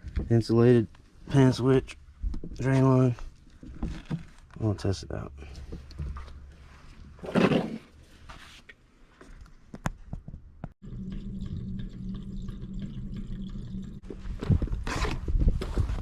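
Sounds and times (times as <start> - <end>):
water pouring: 10.8 - 14.1.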